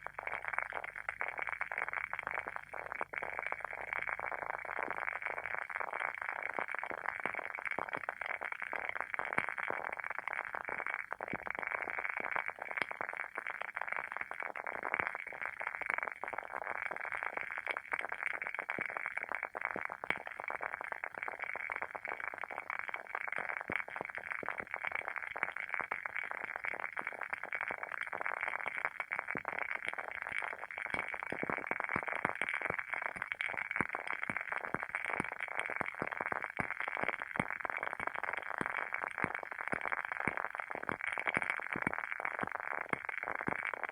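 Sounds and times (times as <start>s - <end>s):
candle wick crackling: 29.4s - 43.9s.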